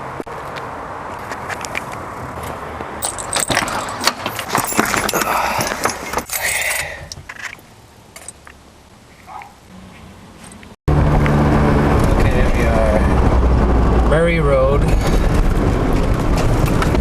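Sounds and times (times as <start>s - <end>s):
car keys jangling: 3.0s - 7.6s, 8.2s - 8.6s.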